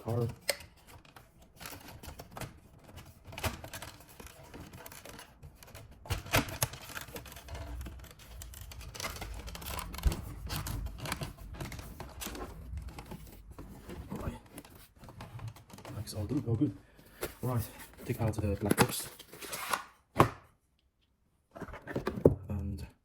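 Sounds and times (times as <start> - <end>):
plastic trim clicking and scraping: 0.1 - 16.4.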